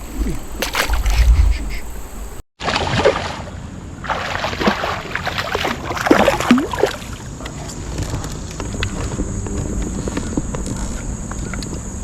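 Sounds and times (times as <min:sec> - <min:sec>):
water splashing at a kayak: 0:00.0 - 0:08.2.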